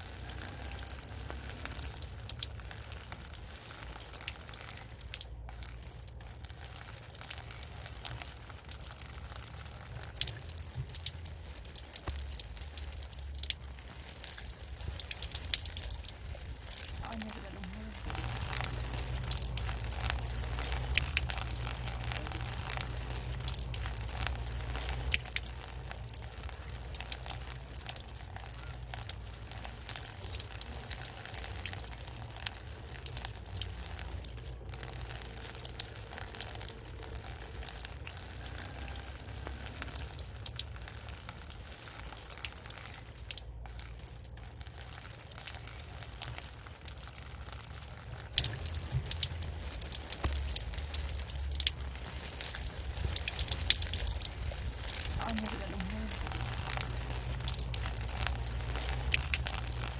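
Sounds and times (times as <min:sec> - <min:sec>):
rain crackling on a surface: 0:00.0 - 0:59.9
low rumble: 0:04.7 - 0:31.0, 0:47.2 - 0:59.9.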